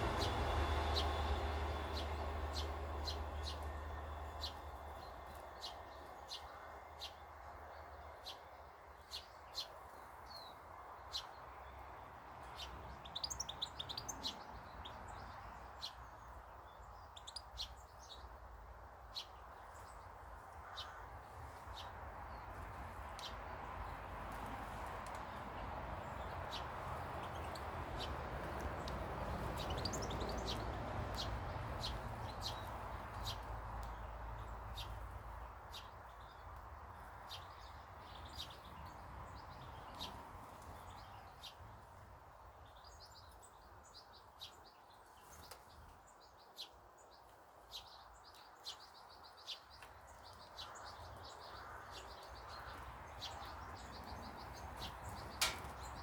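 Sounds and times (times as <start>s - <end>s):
low background rumble: 0.0s - 8.2s
small birds chirping: 0.0s - 56.0s.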